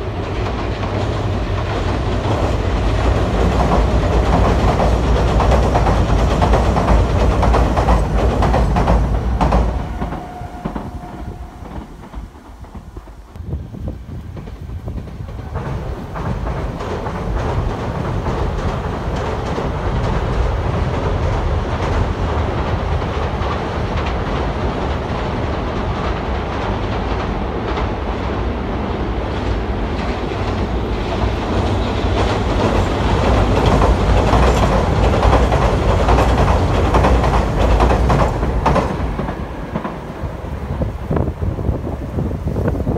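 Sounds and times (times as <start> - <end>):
trains rumbling across steel bridge: 0.0 - 42.9
wheels clattering over rail joints: 29.8 - 40.1.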